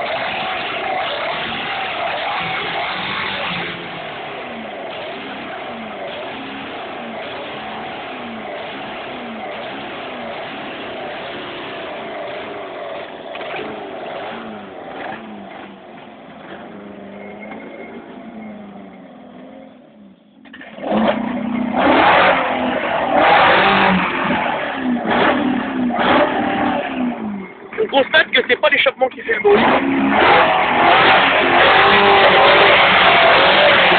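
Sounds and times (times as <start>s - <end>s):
car engine revving: 0.0s - 33.9s.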